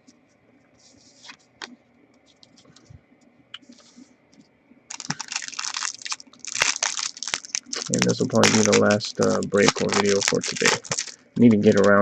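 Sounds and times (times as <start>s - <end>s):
foil wrapper crinkling: 4.9s - 12.0s.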